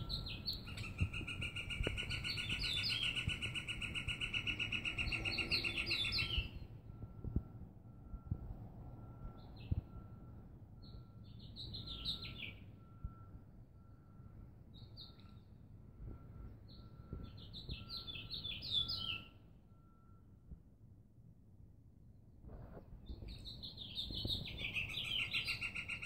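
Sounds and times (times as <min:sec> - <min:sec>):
songbird singing: 0:00.0 - 0:07.5, 0:09.0 - 0:20.2, 0:23.0 - 0:26.0.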